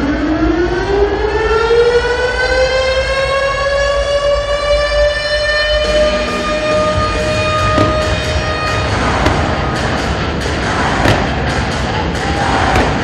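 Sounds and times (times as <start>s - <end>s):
siren wailing: 0.0s - 9.9s.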